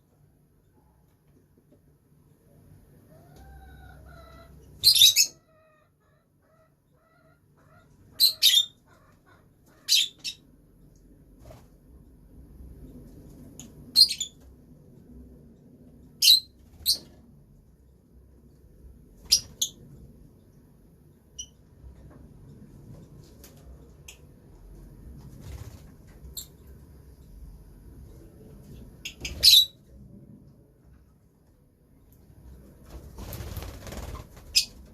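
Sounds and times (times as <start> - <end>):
lovebirds chirping: 8.1 - 10.5.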